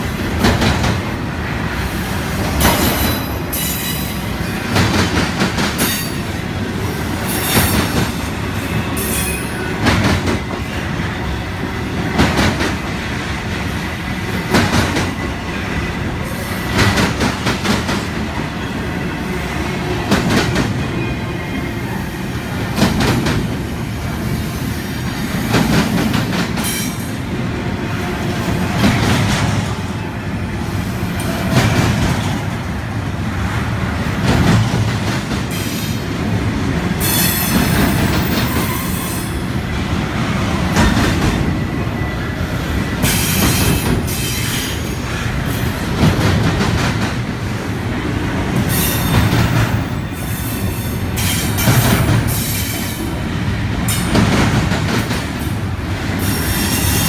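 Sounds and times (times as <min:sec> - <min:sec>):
freight train rumble: 0:00.0 - 0:57.0
train wheels clacking over rail joints: 0:00.3 - 0:01.2, 0:02.3 - 0:06.4, 0:07.2 - 0:10.8, 0:12.0 - 0:15.4, 0:16.2 - 0:18.7, 0:22.7 - 0:23.7, 0:25.1 - 0:27.2, 0:28.3 - 0:29.9, 0:31.2 - 0:32.6, 0:34.0 - 0:36.0, 0:37.0 - 0:39.1, 0:40.6 - 0:41.6, 0:43.0 - 0:47.5, 0:48.5 - 0:53.1, 0:53.7 - 0:55.6.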